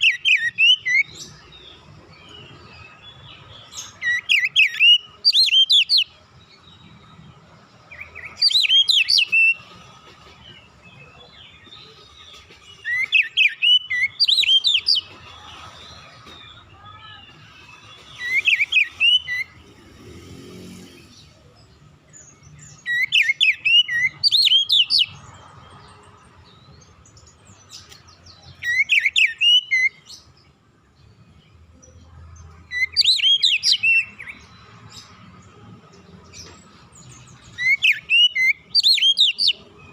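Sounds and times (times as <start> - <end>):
bird singing whistled notes: 0.0 - 1.6, 2.2 - 7.3, 7.9 - 9.6, 11.0 - 15.1, 16.2 - 19.7, 22.1 - 25.2, 27.1 - 30.3, 32.7 - 34.5, 37.0 - 39.9.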